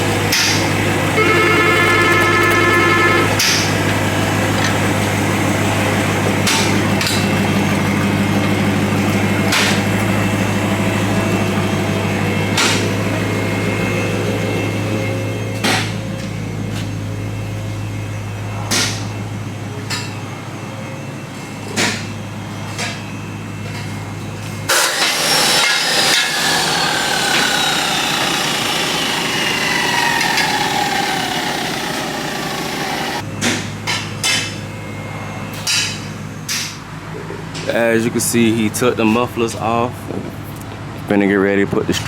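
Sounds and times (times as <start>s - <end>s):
power tool whine: 0.0s - 16.4s, 24.7s - 33.2s.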